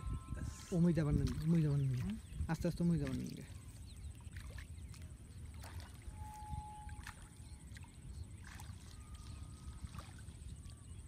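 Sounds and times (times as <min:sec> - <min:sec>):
feet splashing in shallow water: 0:00.7 - 0:11.0
thin whistling tones: 0:05.6 - 0:11.0.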